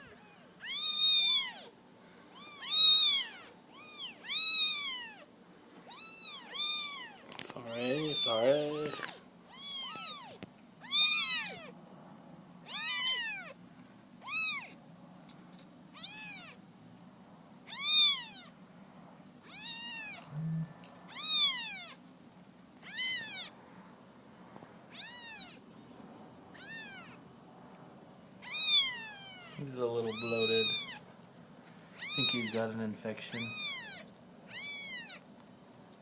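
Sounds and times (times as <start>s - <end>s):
kittens mewing: 0.0s - 11.8s, 12.7s - 13.6s, 14.2s - 14.8s, 15.9s - 16.6s, 17.7s - 18.6s, 19.4s - 22.0s, 22.8s - 23.6s, 24.9s - 25.6s, 26.5s - 27.2s, 28.4s - 31.1s, 32.0s - 32.6s, 33.3s - 35.3s.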